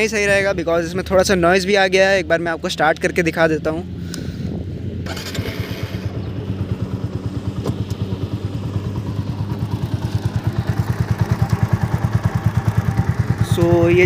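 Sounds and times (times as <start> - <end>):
motorcycle engine running: 4.4 - 14.0.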